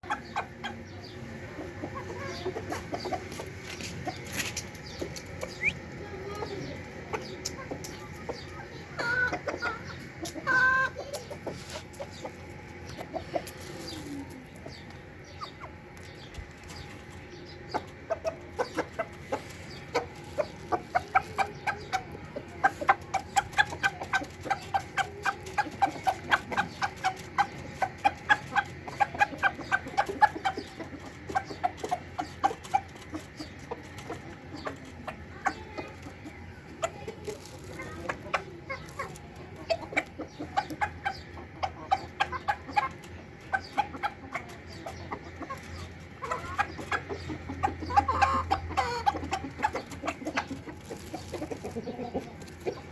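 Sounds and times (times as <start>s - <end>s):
chickens clucking: 0.0s - 52.9s.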